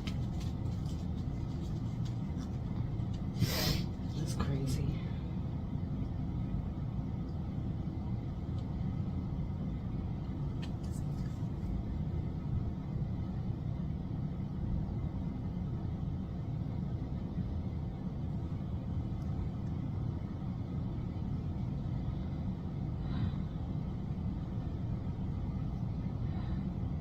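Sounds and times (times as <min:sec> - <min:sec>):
low background rumble: 0:00.0 - 0:27.0.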